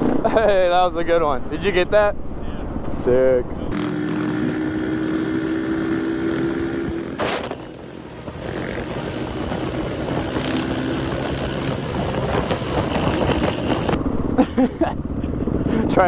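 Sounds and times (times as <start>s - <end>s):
wind noise on microphone: 2.0s - 16.0s
dirt bike engine: 3.6s - 16.0s.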